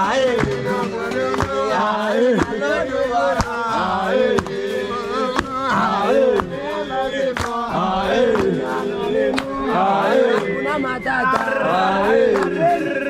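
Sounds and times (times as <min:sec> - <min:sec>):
men singing a rhythmic chant: 0:00.0 - 0:13.0
pestle pounding in a mortar: 0:05.2 - 0:06.6.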